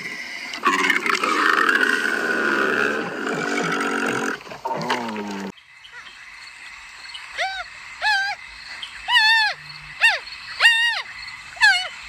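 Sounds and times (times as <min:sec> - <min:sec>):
camel groaning: 0:00.6 - 0:05.5.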